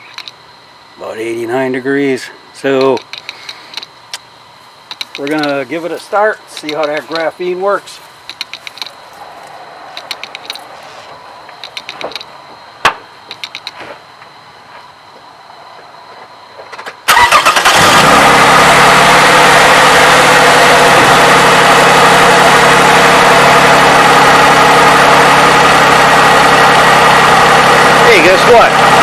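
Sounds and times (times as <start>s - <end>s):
light clicks and taps: 4.9s - 5.6s
car engine starting and idling: 4.9s - 14.5s, 16.8s - 29.0s.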